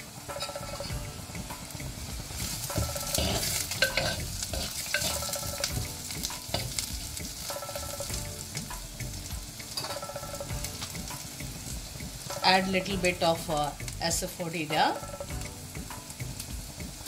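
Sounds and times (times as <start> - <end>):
food sizzling in hot oil: 0.0 - 17.0
steel ladle scraping a pot: 2.8 - 5.7.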